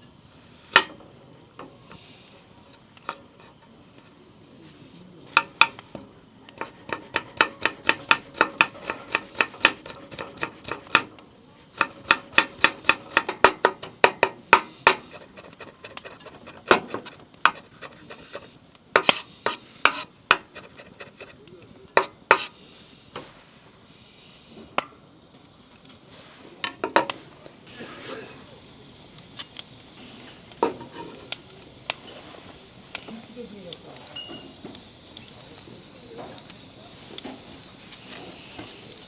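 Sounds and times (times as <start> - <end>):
knife chopping on wooden board: 19.0 - 21.3.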